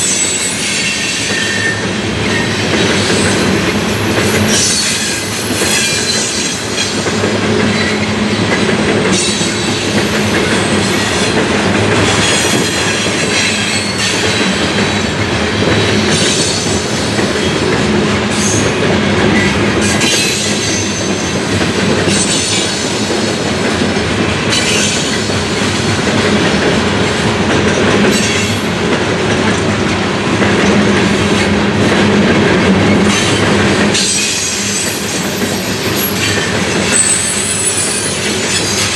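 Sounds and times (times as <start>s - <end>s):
high-pitched wheel squeal: 0.0s - 6.6s, 34.0s - 38.9s
freight train rumble: 0.0s - 38.9s
wheels clattering on rails: 0.0s - 38.9s.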